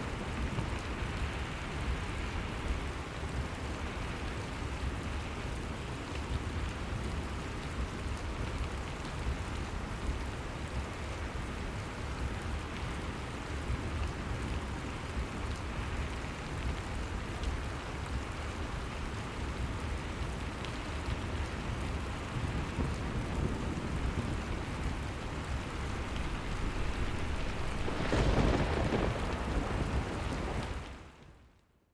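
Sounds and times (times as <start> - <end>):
rain pattering on surfaces: 0.0 - 31.8
low rumble: 22.5 - 30.2.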